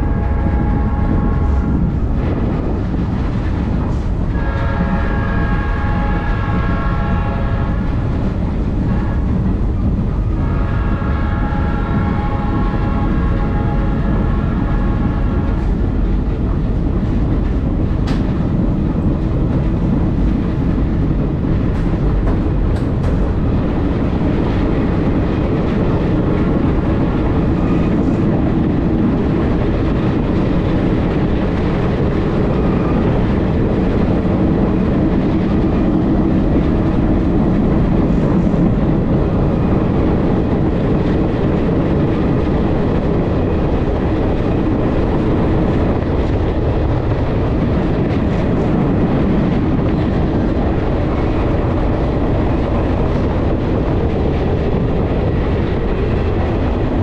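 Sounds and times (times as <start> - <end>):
locomotive horn blasts: 0.0 - 2.0, 4.3 - 8.1, 8.8 - 9.6, 10.2 - 15.9
train car rumbling on track: 0.0 - 57.0.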